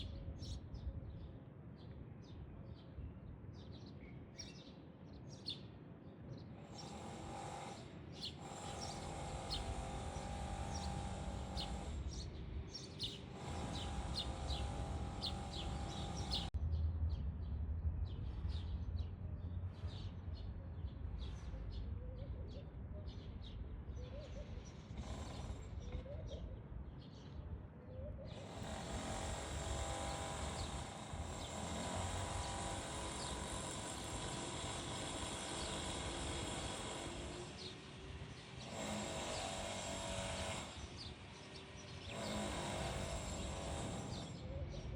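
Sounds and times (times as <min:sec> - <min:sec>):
small birds chirping: 0:00.0 - 0:44.9
low outdoor rumble: 0:14.3 - 0:24.3.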